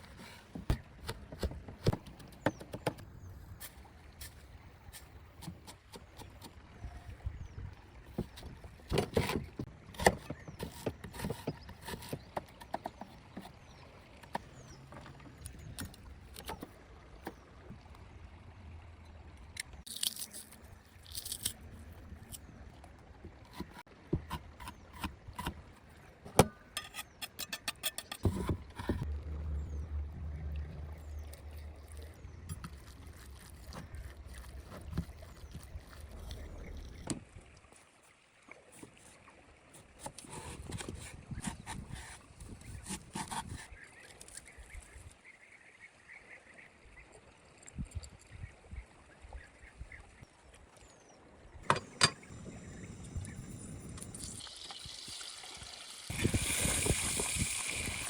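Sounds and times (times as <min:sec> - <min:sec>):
utensils knocking and scraping: 0:26.3 - 0:29.0, 0:51.6 - 0:52.3
low steady rumble: 0:28.3 - 0:37.1.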